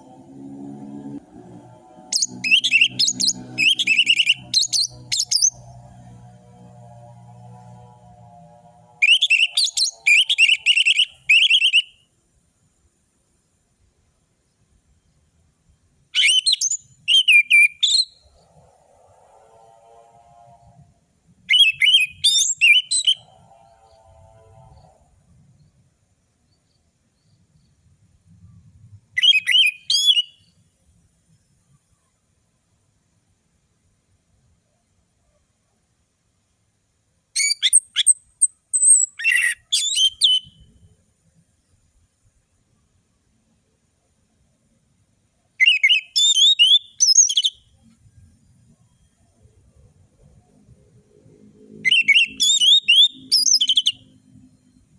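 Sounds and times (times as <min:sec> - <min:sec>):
thrush whistling song: 0:00.0 - 0:05.7, 0:09.0 - 0:12.1, 0:16.2 - 0:20.1, 0:21.4 - 0:25.0, 0:28.3 - 0:30.6, 0:37.4 - 0:41.0, 0:45.6 - 0:50.5, 0:51.6 - 0:54.9.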